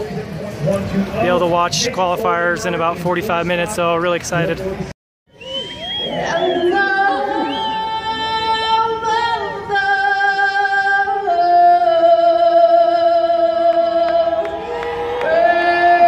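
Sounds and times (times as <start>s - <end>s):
person singing long notes: 6.2s - 16.0s.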